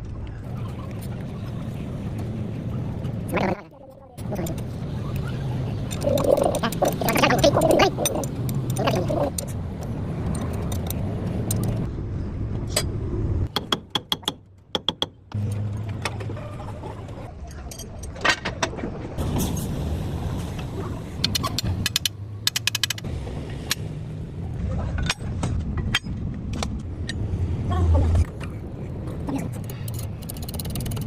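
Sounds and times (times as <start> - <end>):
metal tools clinking and rattling: 5.8 - 9.6, 10.2 - 11.9.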